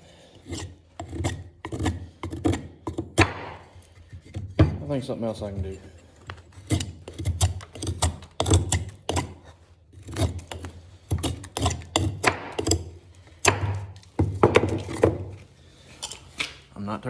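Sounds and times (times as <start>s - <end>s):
hard objects knocking and clicking: 10.0s - 15.4s.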